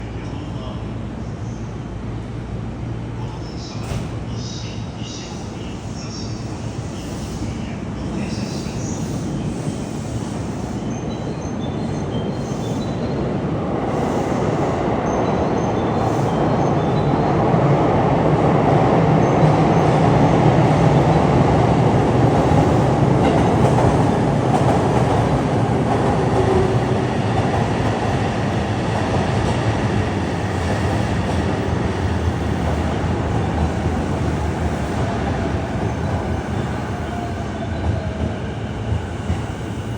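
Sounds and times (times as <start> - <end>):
electric train rumble: 0.0 - 39.9
train brakes whine: 3.5 - 13.2, 13.8 - 17.1.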